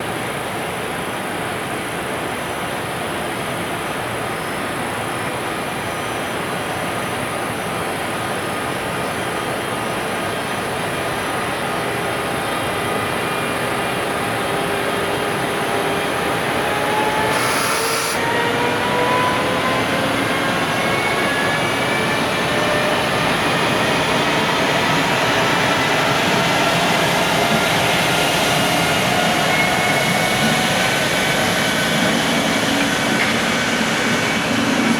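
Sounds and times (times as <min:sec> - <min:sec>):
train rolling noise: 0:00.0 - 0:34.9
electric motor whine rising: 0:16.6 - 0:22.9.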